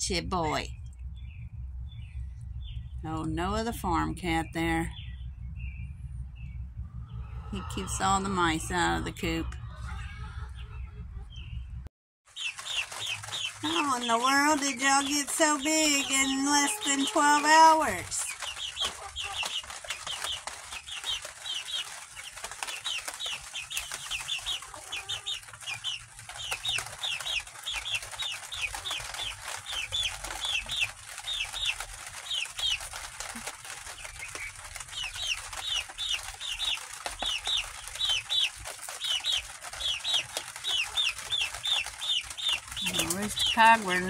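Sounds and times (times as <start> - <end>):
young chickens peeping: 0.1 - 44.0.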